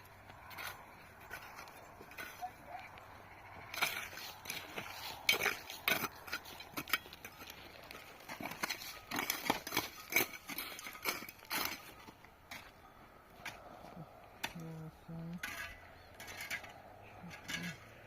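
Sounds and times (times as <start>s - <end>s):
hand tools scraping mortar: 0.0s - 3.0s, 3.6s - 12.8s, 13.4s - 18.0s.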